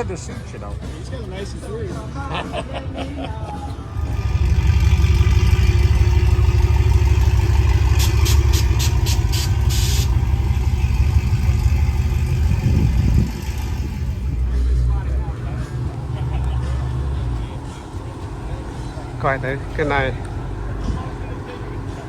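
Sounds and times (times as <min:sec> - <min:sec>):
vehicle engine rumbling: 0:00.0 - 0:22.0
short hiss: 0:08.0 - 0:10.2.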